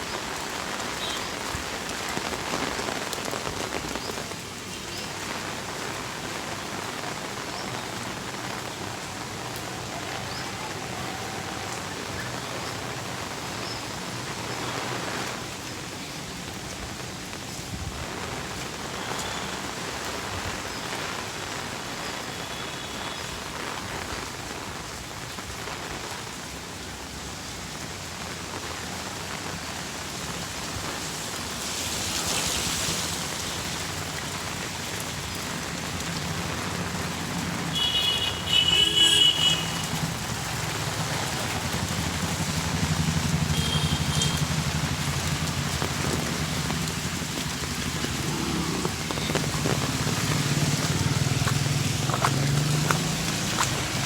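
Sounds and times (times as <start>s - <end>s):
steady rain falling: 0.0s - 54.0s
passing vehicle engines humming: 39.4s - 54.0s.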